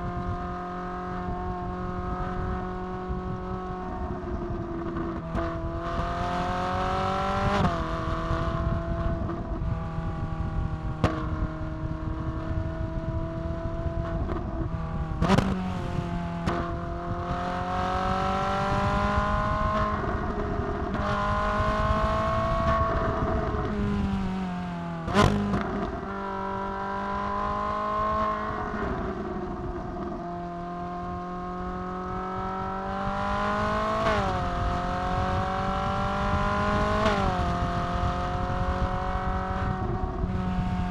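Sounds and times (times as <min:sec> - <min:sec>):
car engine at road speed: 0:00.0 - 0:40.9.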